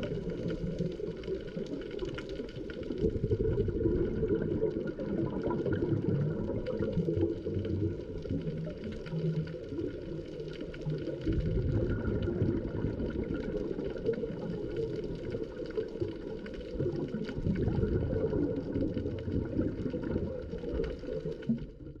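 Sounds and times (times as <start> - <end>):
faint crackling clicks: 0.0 - 22.0
muffled underwater rumble: 0.0 - 22.0.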